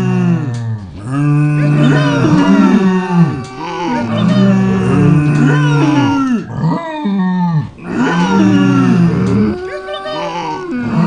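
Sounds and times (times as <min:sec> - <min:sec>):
farm animals calling: 0:01.4 - 0:06.4.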